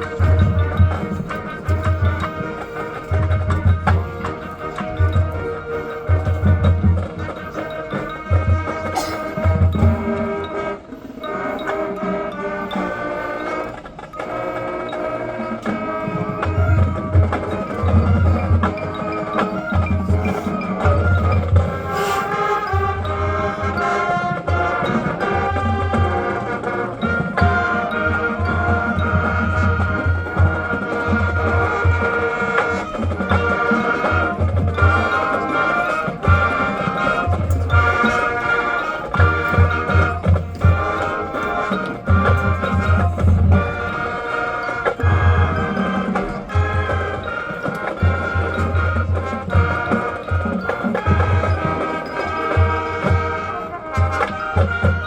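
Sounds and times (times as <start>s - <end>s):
marching band brass chords: 0.0s - 55.0s.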